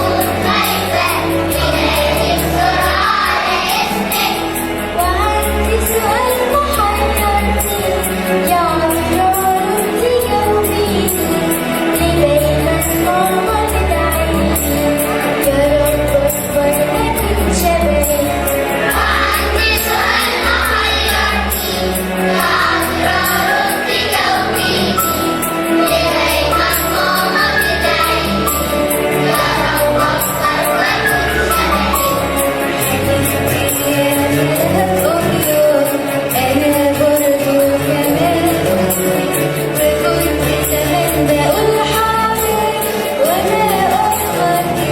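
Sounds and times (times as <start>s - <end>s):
choir singing a hymn: 0.0s - 5.0s, 18.7s - 35.1s.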